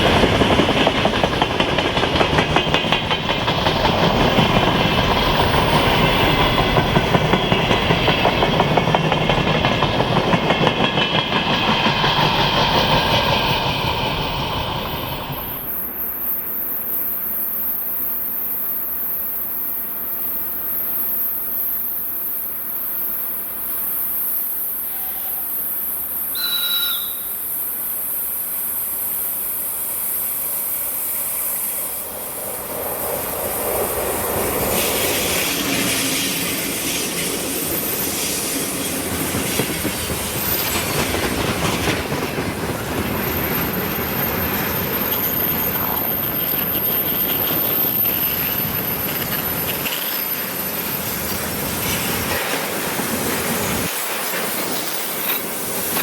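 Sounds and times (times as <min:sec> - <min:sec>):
freight train wheels clattering: 0:00.0 - 0:15.8, 0:32.3 - 0:56.0.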